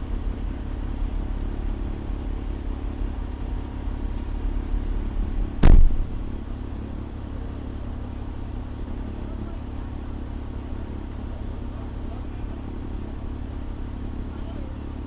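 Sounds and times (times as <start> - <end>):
fire engine running: 0.0 - 15.0
loud sharp thump: 5.6 - 6.4.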